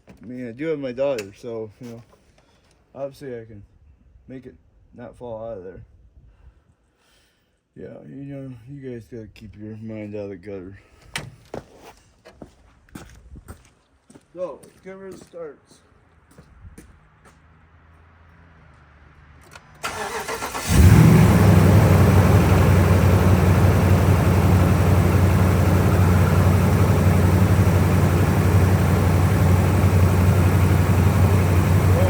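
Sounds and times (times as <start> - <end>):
starter cranking engine: 19.9 - 32.0
truck engine idling: 19.9 - 32.0.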